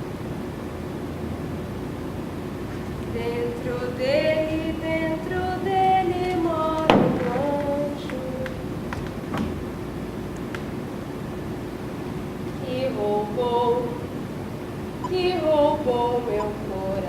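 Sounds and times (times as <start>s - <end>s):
woman singing wordless melody: 3.0s - 8.9s, 12.5s - 17.0s
sharp knock: 6.9s - 7.7s.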